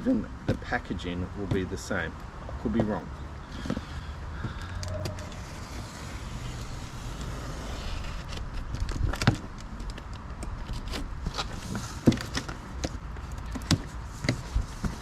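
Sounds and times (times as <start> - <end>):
clicks and scrapes: 4.7 - 15.0.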